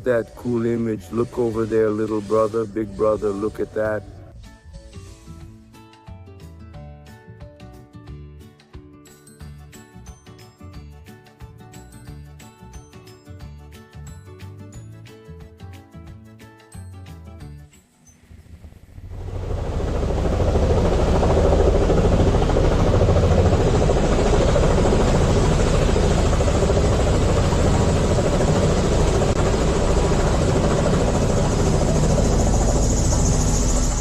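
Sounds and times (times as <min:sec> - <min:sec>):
helicopter rotor and turbine rumble: 0:00.0 - 0:04.3, 0:18.5 - 0:34.0.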